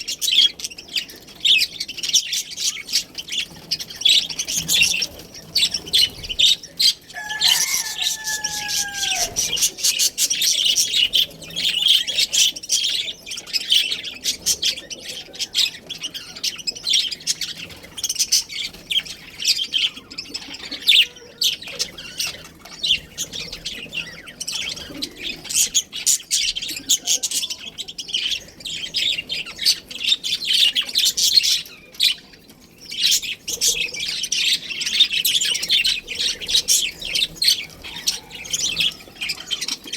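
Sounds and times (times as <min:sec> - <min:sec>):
budgerigars chirping: 0:00.0 - 0:39.9
lower falling bird call: 0:07.1 - 0:10.0.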